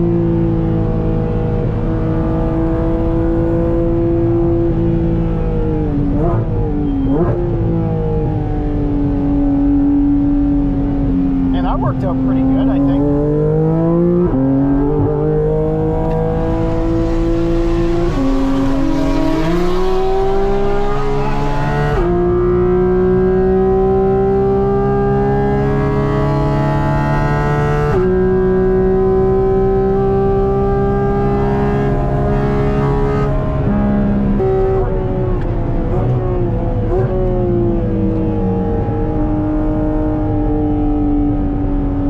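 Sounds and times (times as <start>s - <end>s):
sports car engine changing gear: 10.9s - 40.9s.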